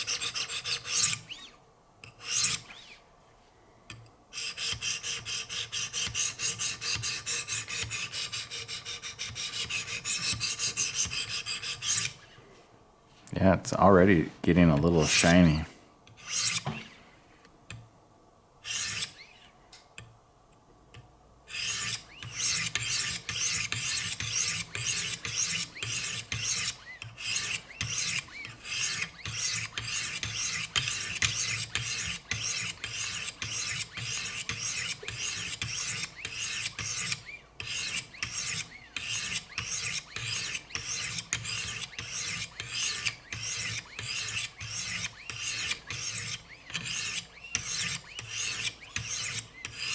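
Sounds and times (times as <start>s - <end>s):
knife scraping on sharpening plates: 21.5s - 49.9s.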